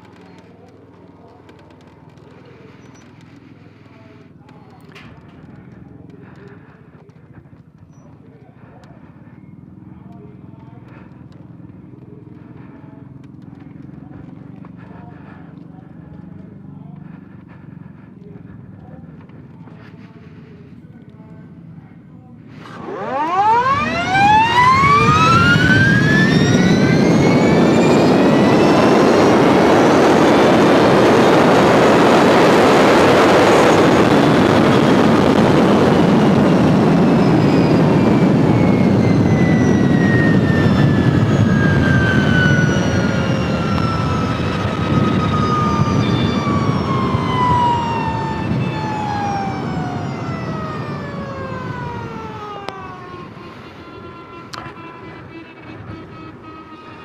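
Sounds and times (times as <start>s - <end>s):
electric motorcycle motor whine: 22.4s - 57.0s
heavy wind rush: 23.6s - 56.7s.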